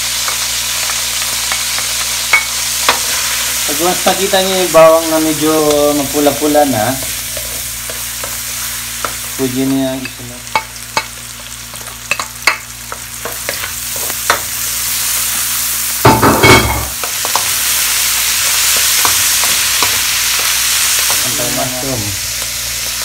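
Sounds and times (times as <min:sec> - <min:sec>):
garlic and onion sizzling in oil: 0:00.0 - 0:23.0
spatula scraping and tapping pan: 0:10.5 - 0:14.5.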